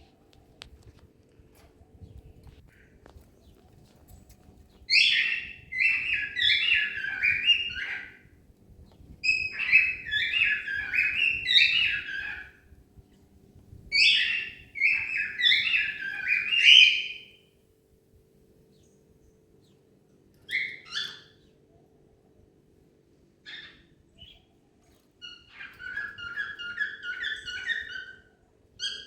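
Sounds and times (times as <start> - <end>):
cockatiel whistling: 4.9 - 8.1, 14.0 - 17.2.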